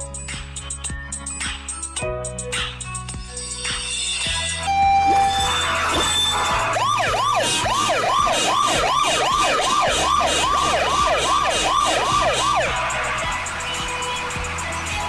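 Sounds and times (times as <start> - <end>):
cartoon police siren yelping: 4.9 - 13.1.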